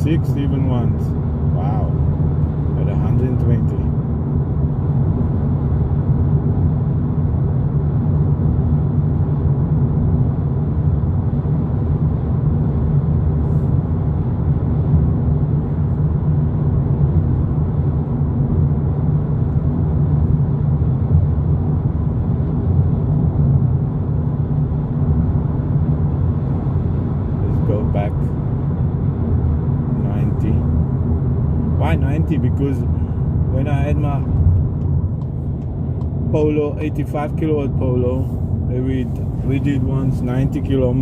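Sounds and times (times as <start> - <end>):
car interior road rumble: 0.0 - 41.0.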